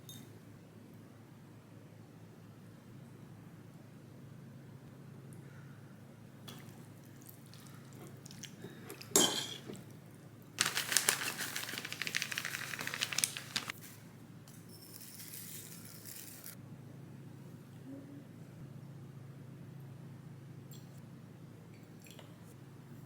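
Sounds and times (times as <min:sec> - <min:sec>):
faint rustling: 0:10.6 - 0:13.7
packaging crinkling and tearing: 0:10.6 - 0:13.8.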